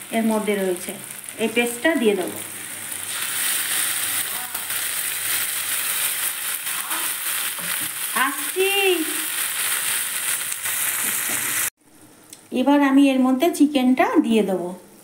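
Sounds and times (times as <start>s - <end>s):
paste sizzling in hot oil: 0.0s - 11.7s.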